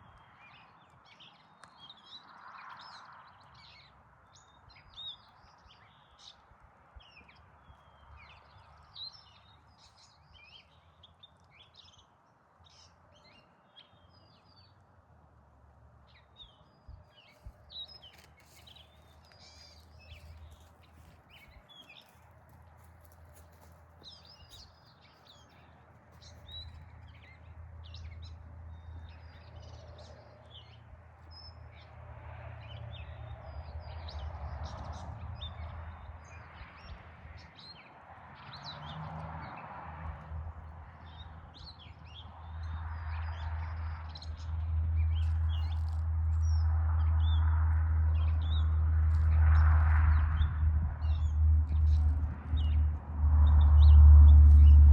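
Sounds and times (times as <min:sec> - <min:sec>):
low steady rumble: 0:50.8 - 0:54.9.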